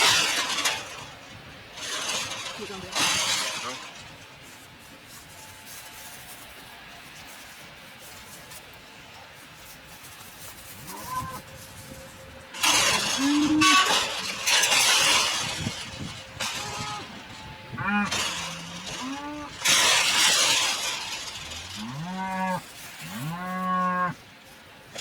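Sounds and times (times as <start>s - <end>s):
cattle mooing: 12.7s - 14.0s, 17.8s - 19.7s, 21.8s - 24.2s.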